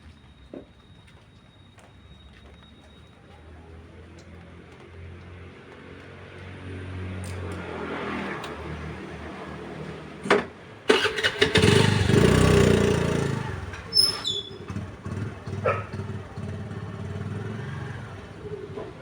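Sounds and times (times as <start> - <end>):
small engine starting and idling: 10.9 - 18.8.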